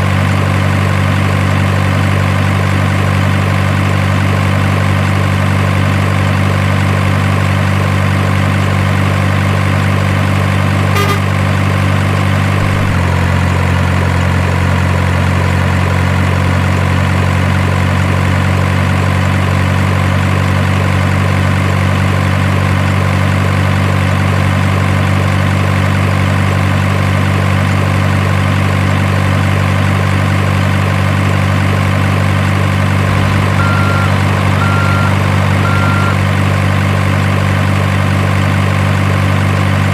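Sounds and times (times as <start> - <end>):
diesel truck engine idling: 0.0 - 39.9
short high beep: 10.9 - 11.4, 33.1 - 36.2.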